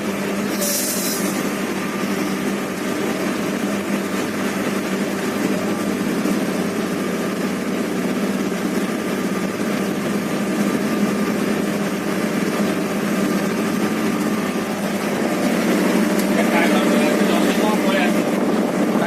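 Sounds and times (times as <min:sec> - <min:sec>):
train locomotive drone: 0:00.0 - 0:19.0.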